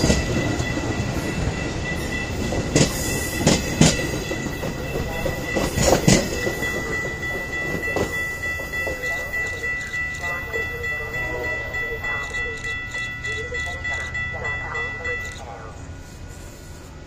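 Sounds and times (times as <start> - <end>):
wheels clacking over rail joints: 0.0 - 10.3
train rumble: 0.0 - 17.0.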